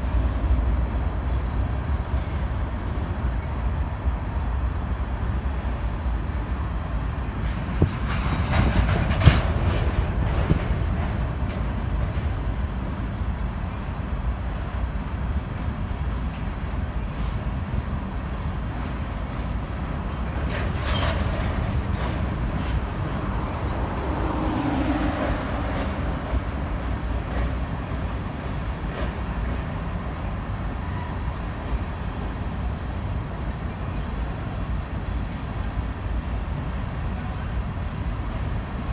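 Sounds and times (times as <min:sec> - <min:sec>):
train rumbling past: 0:00.0 - 0:38.9
train wheel clanks and clicks: 0:07.4 - 0:12.6, 0:20.2 - 0:23.6.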